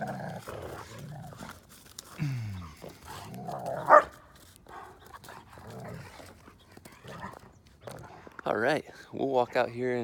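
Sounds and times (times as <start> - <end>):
dog barking: 3.9 - 4.1.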